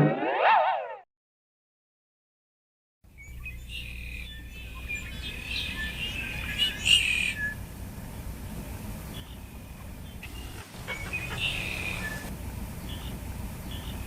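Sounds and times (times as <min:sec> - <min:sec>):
birds chirping: 0:03.1 - 0:14.0.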